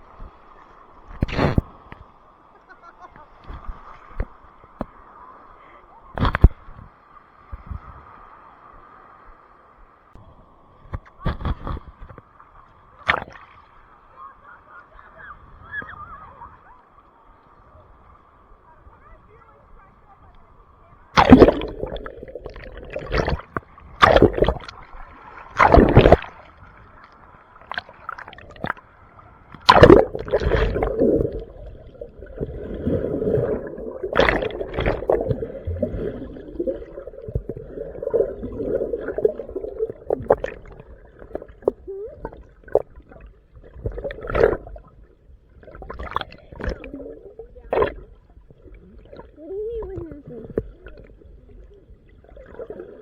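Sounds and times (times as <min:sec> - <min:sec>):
water splashing: 0:13.0 - 0:13.6, 0:21.1 - 0:28.9, 0:29.6 - 0:53.0.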